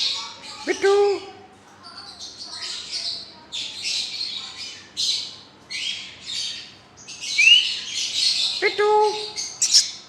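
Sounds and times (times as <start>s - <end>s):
parrots screeching: 9.6s - 10.0s.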